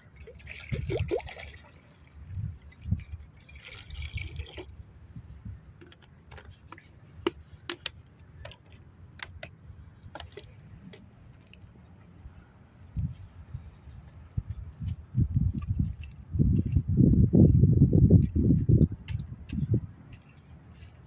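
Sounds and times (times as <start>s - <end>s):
liquid pouring: 0.2s - 2.2s, 3.2s - 4.7s.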